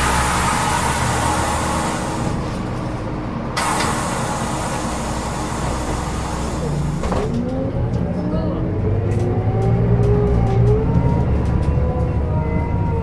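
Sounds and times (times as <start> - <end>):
road hiss: 0.0 - 2.8, 3.6 - 7.2
bus diesel engine running: 0.0 - 13.0
compressed air hiss: 3.6 - 7.0.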